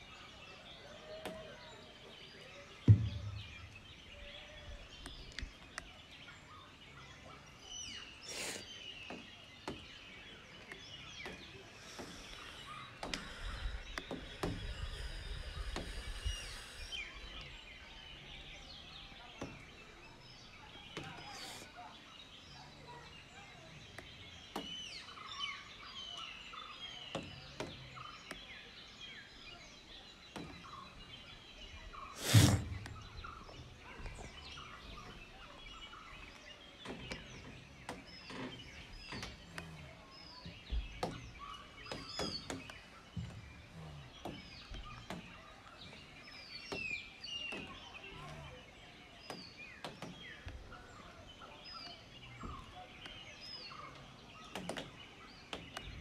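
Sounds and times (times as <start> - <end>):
birds chirping and calling: 0.0 - 56.0.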